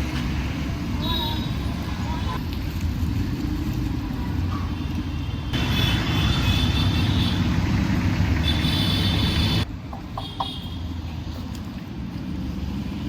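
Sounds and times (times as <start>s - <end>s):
road traffic rumbling: 0.0s - 13.0s
vehicle high whine: 0.0s - 13.0s.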